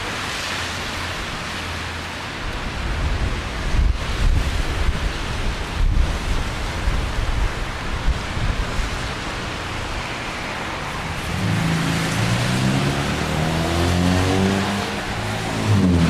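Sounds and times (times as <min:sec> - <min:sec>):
rain hissing on wet street: 0:00.0 - 0:16.0
wind rumbling on microphone: 0:00.0 - 0:16.0
car engine accelerating: 0:11.1 - 0:16.0.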